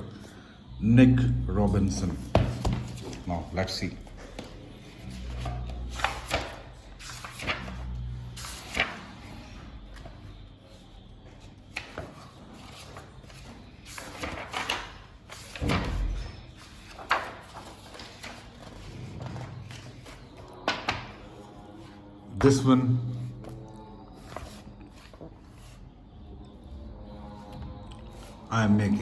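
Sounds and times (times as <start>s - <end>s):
book pages turning: 2.1s - 22.6s, 23.2s - 25.8s.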